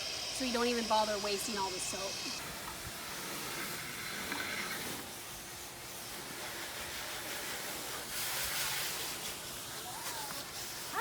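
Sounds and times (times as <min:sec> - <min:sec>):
pressure hose spraying car: 0:00.0 - 0:11.0.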